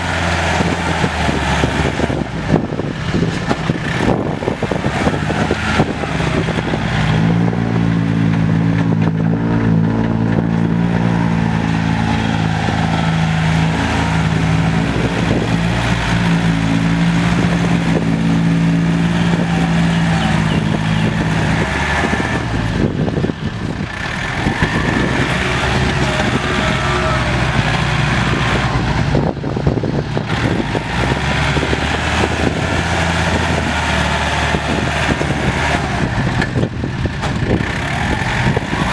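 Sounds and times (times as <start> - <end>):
tractor diesel engine drone: 0.0 - 38.9.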